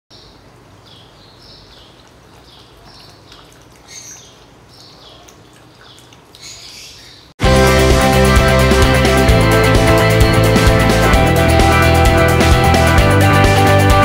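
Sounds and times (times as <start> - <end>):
small bird chirping: 0.1 - 7.3.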